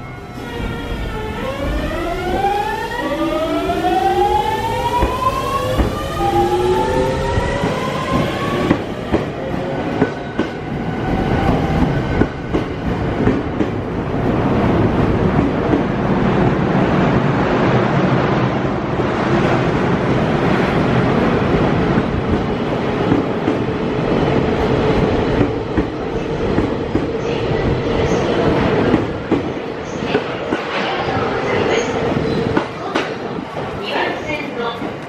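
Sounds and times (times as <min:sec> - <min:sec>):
train wheel and running noise: 0:00.5 - 0:14.0.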